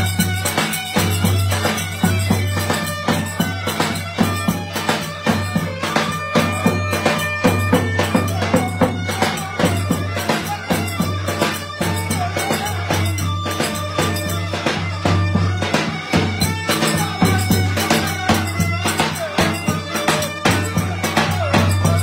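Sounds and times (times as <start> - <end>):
drum beating: 0.0 - 22.0
reedy wind instrument melody: 0.0 - 22.0.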